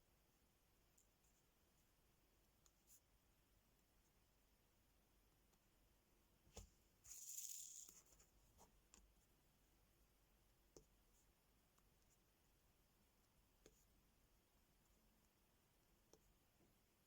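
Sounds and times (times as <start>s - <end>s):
scratchy rustle: 7.1s - 8.3s.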